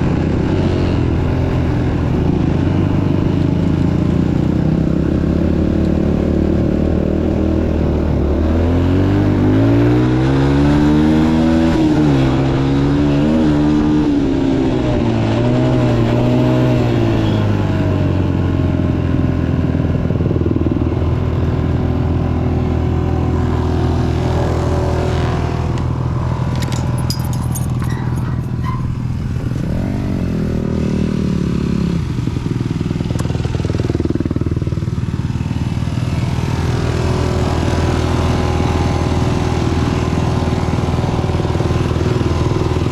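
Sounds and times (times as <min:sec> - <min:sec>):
brief rattles or clicks: 0:26.4 - 0:29.0
dirt bike engine revving: 0:27.6 - 0:32.2.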